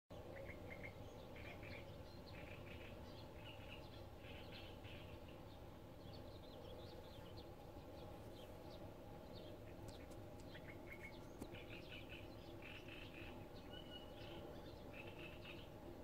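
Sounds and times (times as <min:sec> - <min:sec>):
faint low background rumble: 0:00.2 - 0:16.0
small birds chirping: 0:00.2 - 0:16.0.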